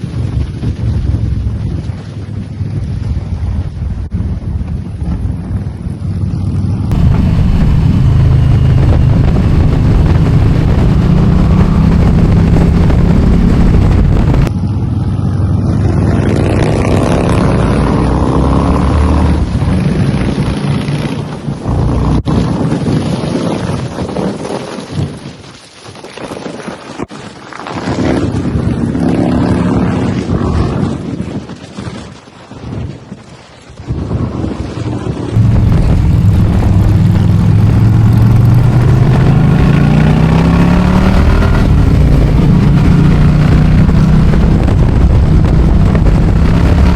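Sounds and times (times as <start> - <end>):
wind buffeting microphone: 0.0 - 46.9
motorcycle engine running: 5.6 - 16.6, 35.4 - 46.9.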